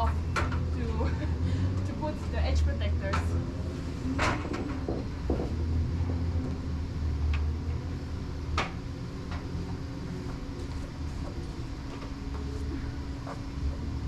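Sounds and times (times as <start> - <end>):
low engine drone: 0.0 - 14.0
sharp knocks and clacks: 4.2 - 5.7.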